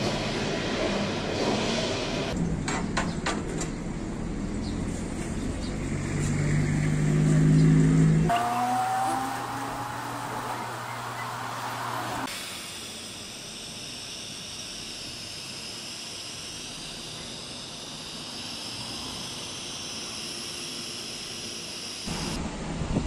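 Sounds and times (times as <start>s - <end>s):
welding arc hissing: 9.4s - 22.4s.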